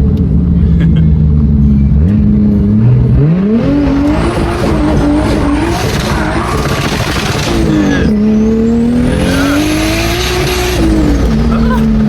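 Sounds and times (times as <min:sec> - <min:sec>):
car engine revving: 0:00.0 - 0:12.0
tyres squealing: 0:04.6 - 0:12.0.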